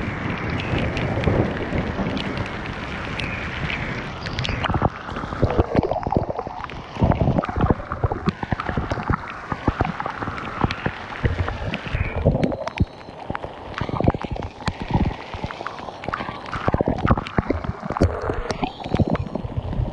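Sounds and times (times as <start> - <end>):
strong wind gusting: 0.0 - 12.6
hail and rain tapping: 0.0 - 19.9.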